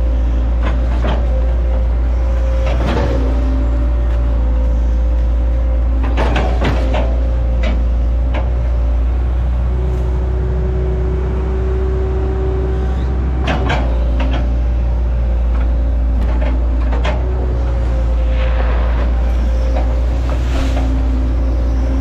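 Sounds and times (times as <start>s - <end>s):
excavator diesel engine: 0.0s - 22.0s
steady whine: 14.8s - 22.0s.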